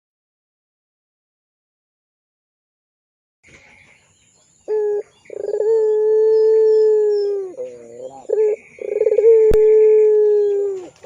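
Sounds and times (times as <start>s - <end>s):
dove cooing: 4.7s - 11.0s.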